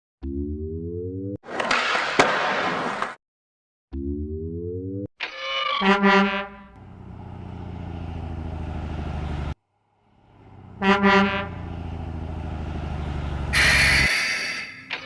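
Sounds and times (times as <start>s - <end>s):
truck horn toots: 5.8s - 6.9s, 10.3s - 12.3s, 12.9s - 14.8s
truck engine running: 6.7s - 14.1s.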